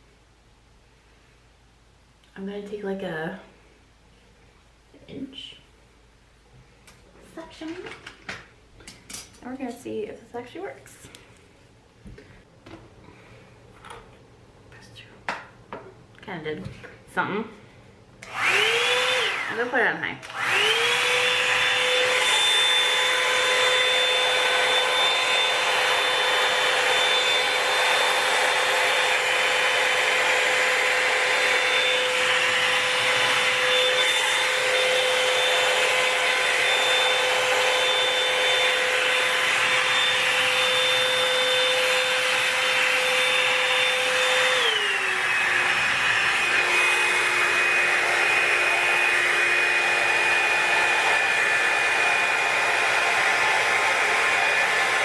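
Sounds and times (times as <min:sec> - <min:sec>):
hot-air brush fan whine: 0:18.0 - 0:55.0.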